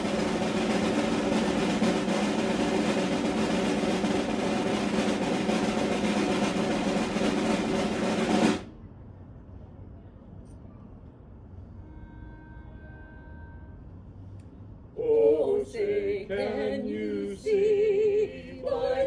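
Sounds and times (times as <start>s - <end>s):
snare drum roll: 0.0s - 8.7s.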